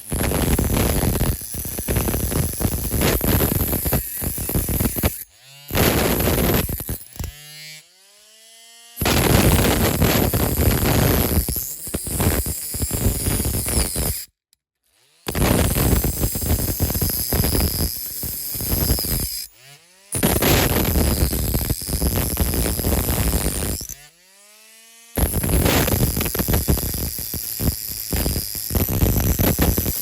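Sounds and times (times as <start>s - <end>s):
metal cutting rasp: 0.0s - 7.9s, 9.0s - 14.3s, 14.9s - 30.0s.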